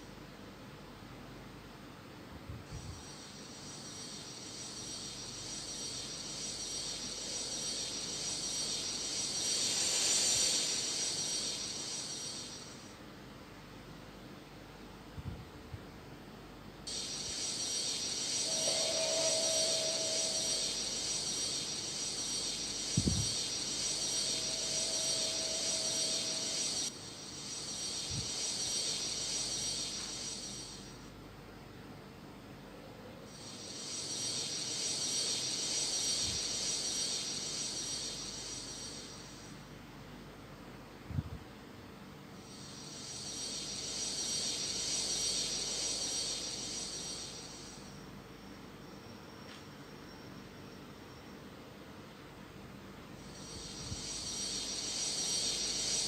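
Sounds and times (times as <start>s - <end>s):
airliner engine hiss: 2.6s - 13.2s, 16.9s - 31.2s, 33.3s - 39.7s, 42.3s - 48.8s, 53.1s - 56.0s
faint engine whine: 16.5s - 41.0s, 42.3s - 56.0s
jet engines whining: 16.9s - 26.9s.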